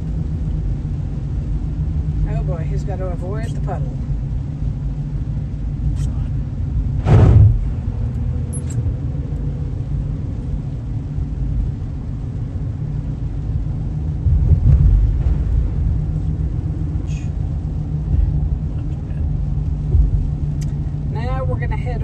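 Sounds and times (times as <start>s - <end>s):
car road noise on wet pavement: 0.0s - 22.0s
whoosh: 7.0s - 8.9s.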